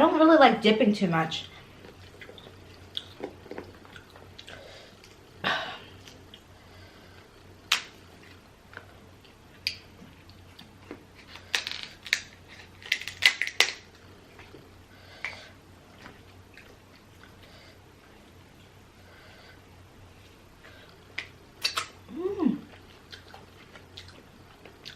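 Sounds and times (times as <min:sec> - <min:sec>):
shells cracking while chewed: 0:01.8 - 0:05.3, 0:07.6 - 0:15.4.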